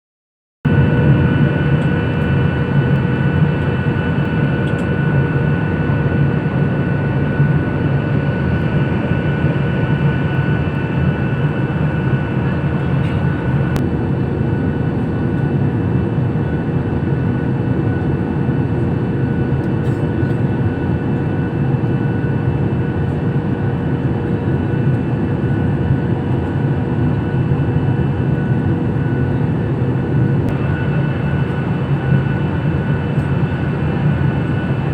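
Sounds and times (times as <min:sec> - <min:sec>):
steady whining tones: 0:00.7 - 0:13.8, 0:24.6 - 0:34.9
aircraft cabin engine drone: 0:00.7 - 0:34.9.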